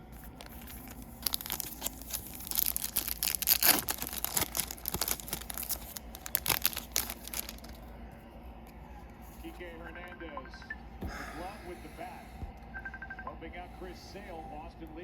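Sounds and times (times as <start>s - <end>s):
foil wrapper tearing and crinkling: 0.1s - 7.8s.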